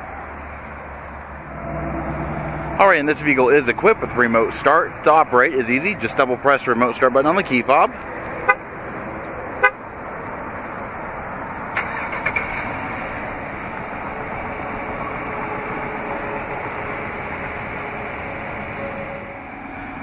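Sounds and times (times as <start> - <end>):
car engine starting and idling: 0.0 - 20.0
car horn chirps: 8.4 - 8.6, 9.6 - 9.8.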